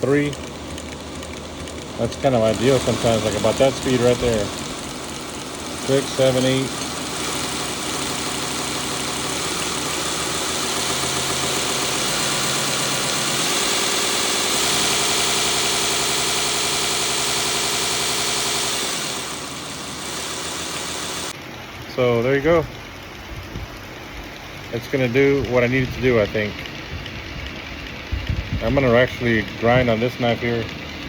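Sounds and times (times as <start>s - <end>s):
belt grinder motor whirring: 0.0s - 21.4s.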